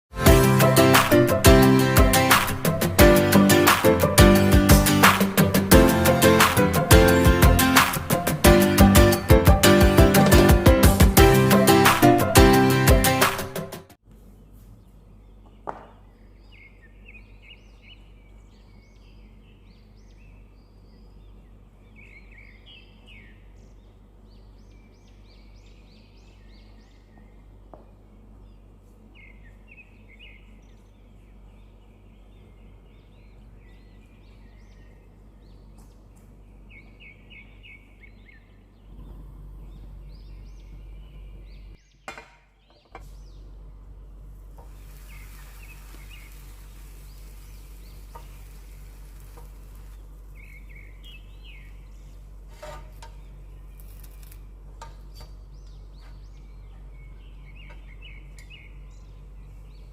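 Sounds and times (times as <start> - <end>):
steady low hum: 14.0 - 59.9
small birds chirping: 14.2 - 59.9.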